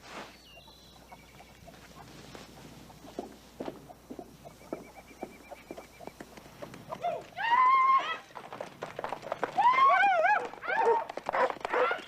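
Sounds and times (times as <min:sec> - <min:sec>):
hooves clip-clopping: 0:01.0 - 0:12.0.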